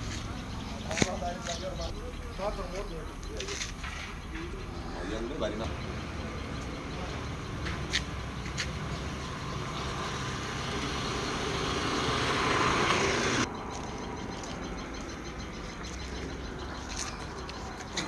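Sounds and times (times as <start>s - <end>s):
truck engine idling: 4.2s - 13.5s.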